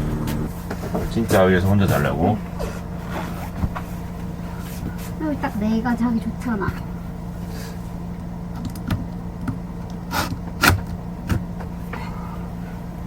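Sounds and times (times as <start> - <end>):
knocks and bumps: 0.0 - 5.5
steady low hum: 0.0 - 13.0.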